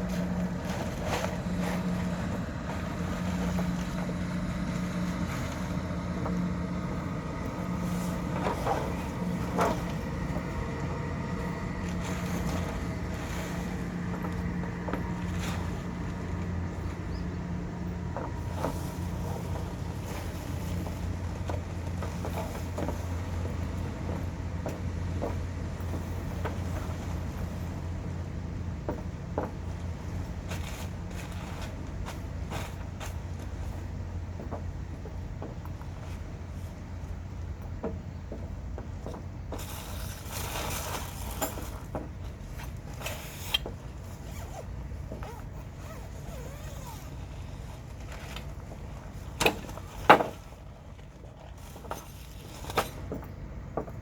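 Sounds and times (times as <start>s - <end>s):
vehicle engine drone: 0.0s - 54.0s
zipper being pulled: 44.2s - 47.6s.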